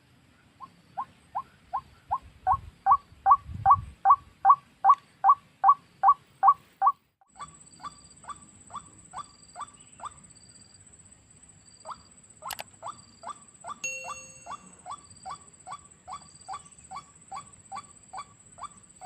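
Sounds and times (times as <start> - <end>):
short high chirps: 13.8 - 14.9
waterhen calling: 13.8 - 18.8.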